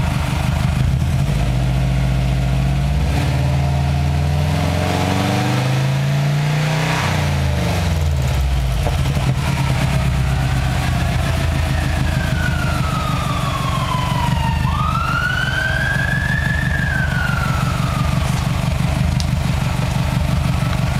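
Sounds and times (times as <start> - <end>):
car engine idling burble: 0.0 - 3.0, 8.0 - 20.9
siren wailing: 9.3 - 20.9.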